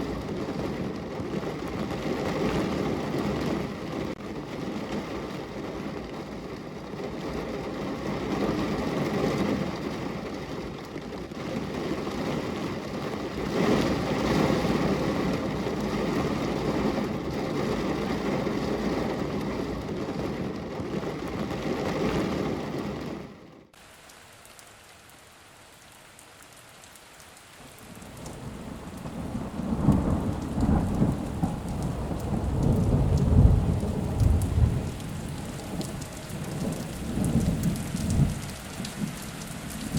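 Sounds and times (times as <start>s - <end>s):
thunder rumbling: 0.0s - 23.7s, 27.7s - 39.9s
steady rain: 0.0s - 39.9s.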